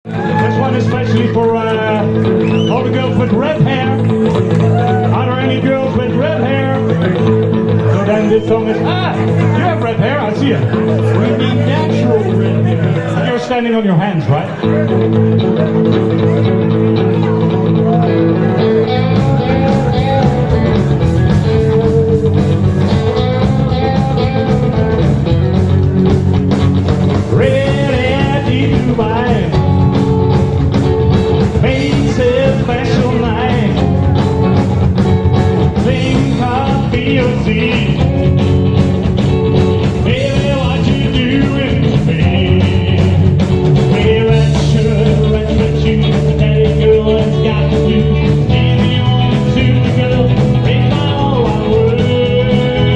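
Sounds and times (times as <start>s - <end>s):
person singing: 0.0s - 13.4s, 14.5s - 25.2s, 27.2s - 30.5s, 31.3s - 34.7s, 35.4s - 38.7s, 39.6s - 52.9s
rock band playing: 0.0s - 52.9s
steady drum beat: 17.4s - 52.9s.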